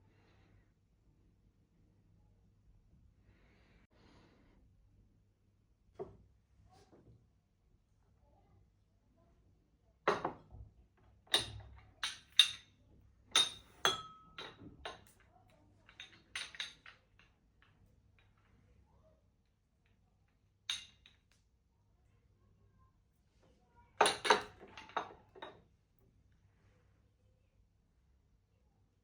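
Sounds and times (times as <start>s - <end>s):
tableware clinking: 13.4s - 15.1s.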